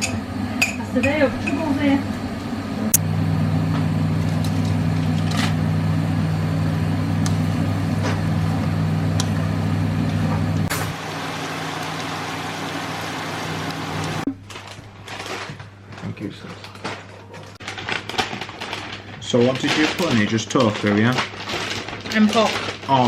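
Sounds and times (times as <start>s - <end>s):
appliance motor humming: 0.2s - 17.3s.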